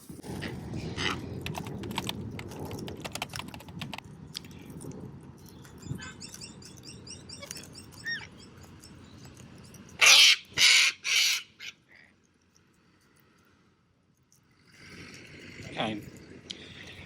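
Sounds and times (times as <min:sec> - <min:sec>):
sharp clicks: 0:01.4 - 0:04.5
small birds chirping: 0:05.4 - 0:12.1.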